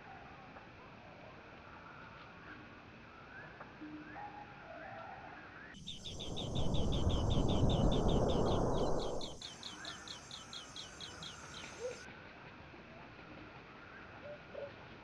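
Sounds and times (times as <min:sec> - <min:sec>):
loud rushing noise: 0:05.8 - 0:09.4
bird chirping rapidly: 0:05.8 - 0:12.0.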